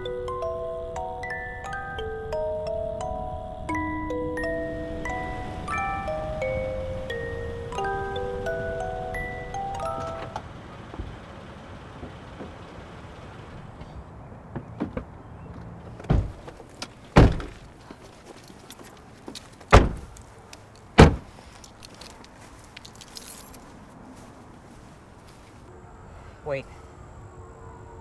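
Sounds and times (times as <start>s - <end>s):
car doors shutting: 4.1s - 17.7s, 19.7s - 20.2s, 21.0s - 21.3s.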